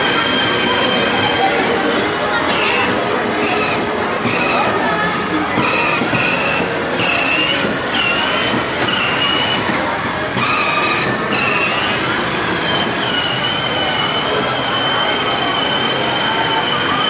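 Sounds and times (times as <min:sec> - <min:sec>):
toy car motor whine: 0:00.0 - 0:17.0
plastic wheels rolling: 0:02.5 - 0:15.9.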